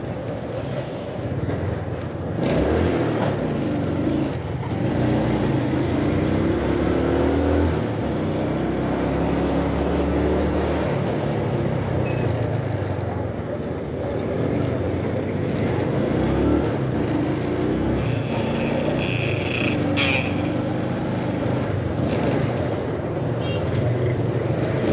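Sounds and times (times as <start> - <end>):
road and wind noise: 0.0 - 24.9
motorcycle engine revving: 2.4 - 12.8, 15.0 - 24.9.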